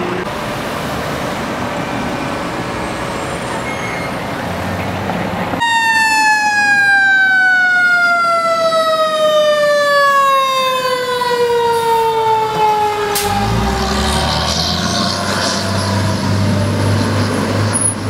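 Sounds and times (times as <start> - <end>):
fire engine siren falling tone: 5.6 - 17.9.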